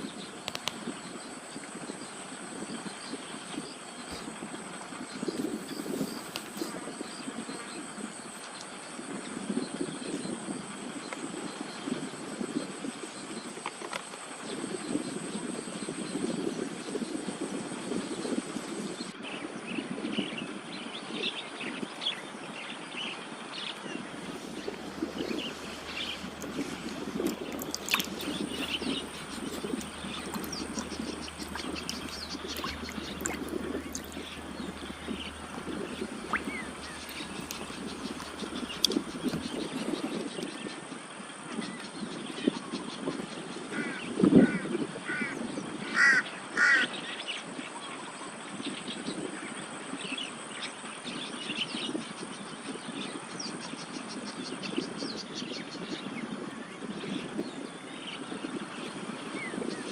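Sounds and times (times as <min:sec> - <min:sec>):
low hum: 0:24.1 - 0:39.8
birds cawing: 0:24.2 - 0:39.7
faint fast ticking: 0:24.2 - 0:39.7
high chirps and clicks: 0:24.2 - 0:39.7.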